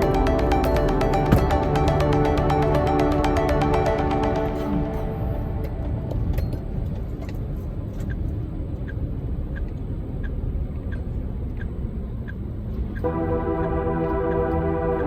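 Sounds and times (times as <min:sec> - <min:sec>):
background music: 0:00.0 - 0:07.3, 0:13.0 - 0:15.0
turn signal ticking: 0:00.0 - 0:15.0
truck engine and road rumble: 0:05.7 - 0:14.3.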